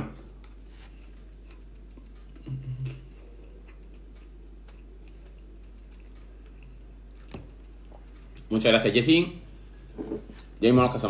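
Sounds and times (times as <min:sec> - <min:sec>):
person chewing: 0:00.4 - 0:08.5
person humming: 0:02.4 - 0:03.2.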